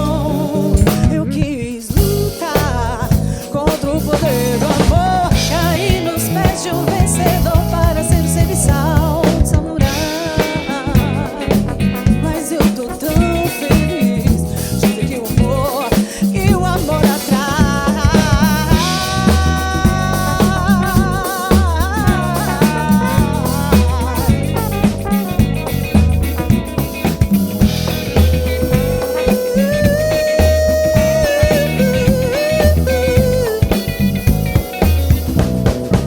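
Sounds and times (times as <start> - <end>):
band playing samba-funk groove: 0.0 - 36.0
melody with long wavering notes: 18.6 - 36.0.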